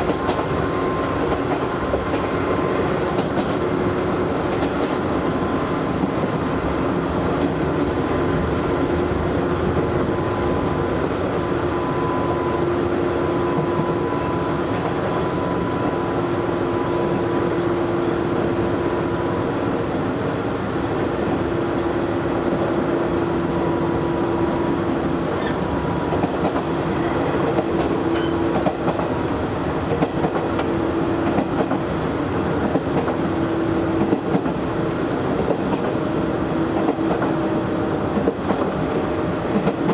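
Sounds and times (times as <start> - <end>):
electric train whine: 0.0 - 39.9
train wheels rumbling on rail: 0.0 - 39.9
faint rail-joint clicks: 4.4 - 6.1, 25.0 - 26.7, 27.4 - 29.1.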